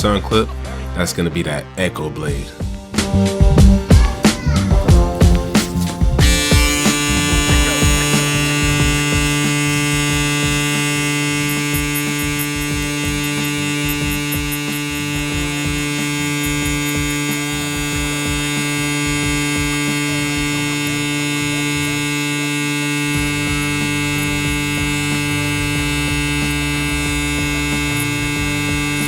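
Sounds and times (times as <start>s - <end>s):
faint crunch of hair cutting: 4.0s - 22.0s
hair clipper buzzing: 4.1s - 29.0s.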